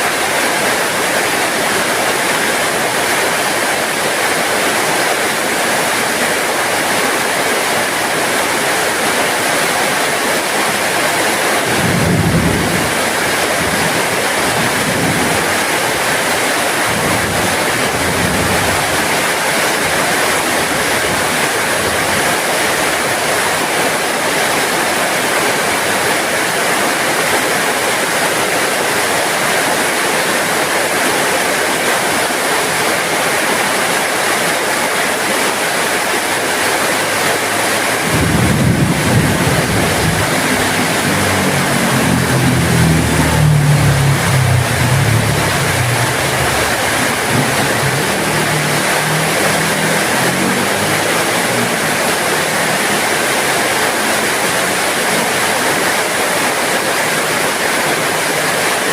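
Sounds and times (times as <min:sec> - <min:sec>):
heavy rain: 0:00.0 - 0:58.9
low rumble: 0:38.1 - 0:50.2.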